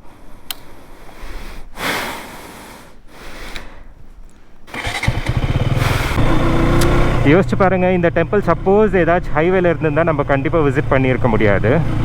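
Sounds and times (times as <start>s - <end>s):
motorcycle engine starting and idling: 4.7s - 12.0s.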